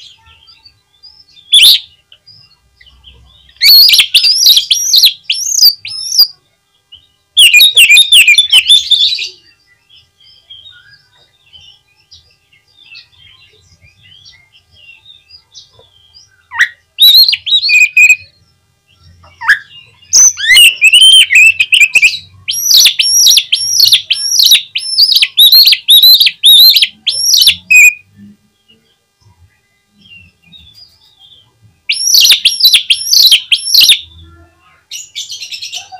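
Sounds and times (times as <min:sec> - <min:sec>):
repeated sweeping bird notes: 0:00.0 - 0:34.3
faint bird twittering: 0:00.0 - 0:35.9
bird singing whistled phrases: 0:00.2 - 0:02.0, 0:03.6 - 0:06.4, 0:07.4 - 0:09.8, 0:16.3 - 0:18.4, 0:19.0 - 0:28.0, 0:31.9 - 0:34.1.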